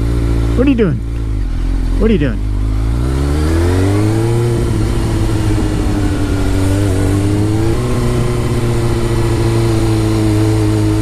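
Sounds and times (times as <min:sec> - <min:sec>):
motorcycle engine cruising: 0:00.0 - 0:11.0
wind rush on microphone: 0:03.8 - 0:11.0.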